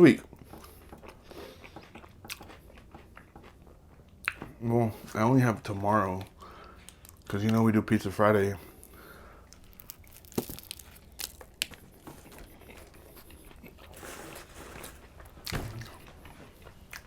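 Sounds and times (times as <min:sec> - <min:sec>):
chewing sandwich crunching: 0:00.3 - 0:04.6, 0:08.6 - 0:17.0.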